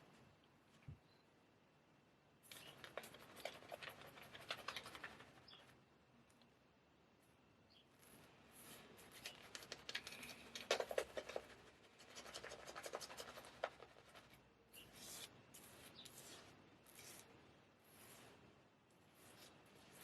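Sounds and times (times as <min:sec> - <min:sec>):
straight razor scraping stubble: 0:08.0 - 0:18.5.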